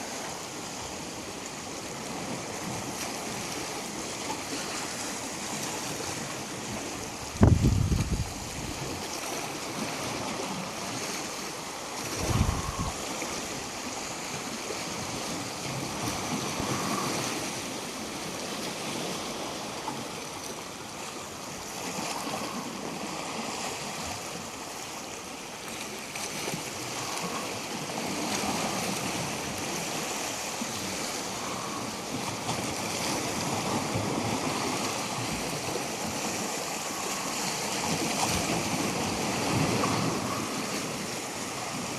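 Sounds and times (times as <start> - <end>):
small waves washing ashore: 0.0 - 41.9
wind rumble on microphone: 5.6 - 9.1, 12.0 - 13.6.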